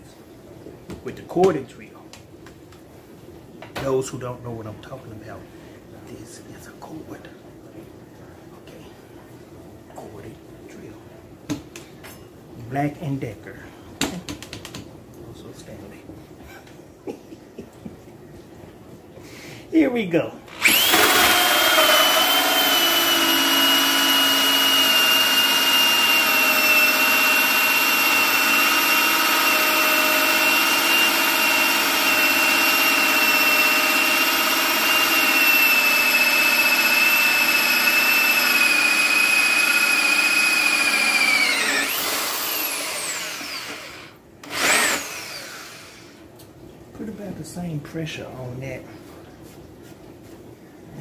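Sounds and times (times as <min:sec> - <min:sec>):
electric drill whining: 0:20.5 - 0:46.2.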